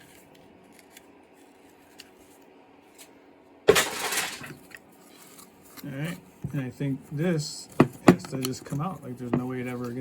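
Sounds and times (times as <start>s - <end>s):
hard parts clattering on workbench: 3.7s - 4.6s.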